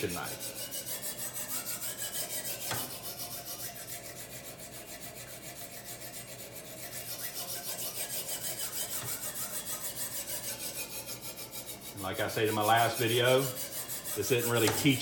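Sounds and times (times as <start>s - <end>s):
sharpening stone scraping knife: 0.0s - 15.0s.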